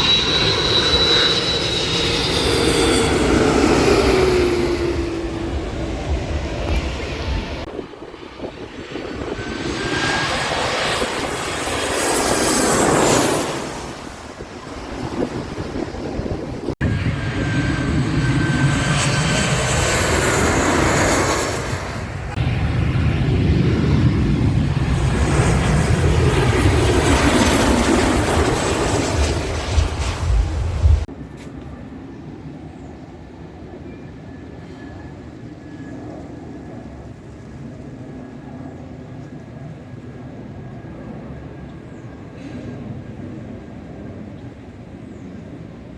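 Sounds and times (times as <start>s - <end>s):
airplane engine roar passing overhead: 0.0s - 45.9s.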